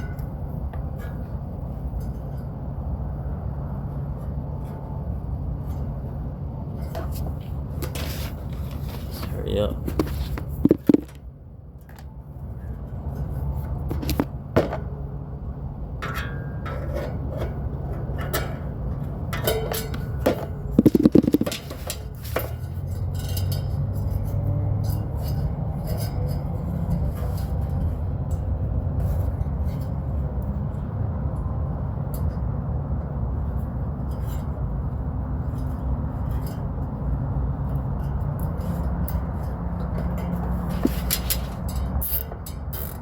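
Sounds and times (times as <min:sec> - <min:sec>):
loud metal clatter: 0:19.3 - 0:23.8
metal clinking and tapping: 0:19.3 - 0:28.5.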